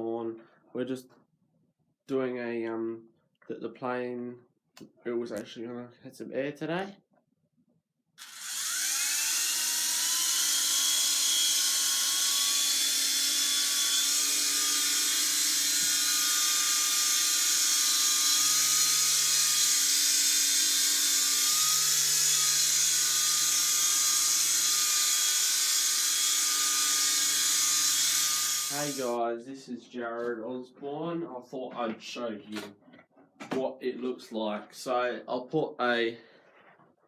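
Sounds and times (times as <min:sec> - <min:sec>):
rc helicopter motor whine: 0:08.2 - 0:29.0.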